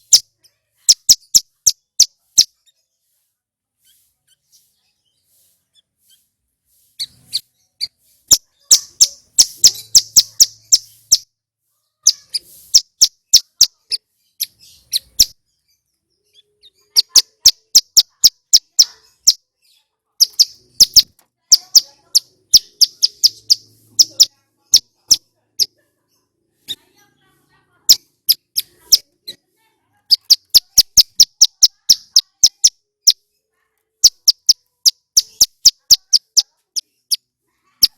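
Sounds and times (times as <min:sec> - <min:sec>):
bird singing high sharp notes: 0:07.0 - 0:11.3, 0:20.2 - 0:25.2, 0:30.1 - 0:33.2, 0:34.0 - 0:37.2.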